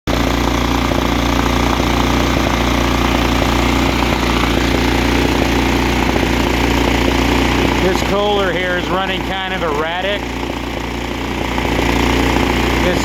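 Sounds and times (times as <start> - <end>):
engine running steadily: 0.1 - 13.0.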